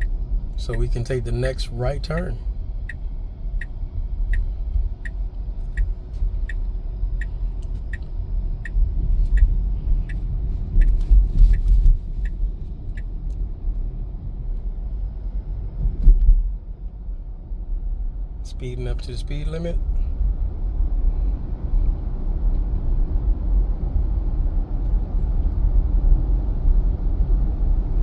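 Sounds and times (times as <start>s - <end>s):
turn signal ticking: 0.0s - 13.4s
road rumble: 0.0s - 28.0s.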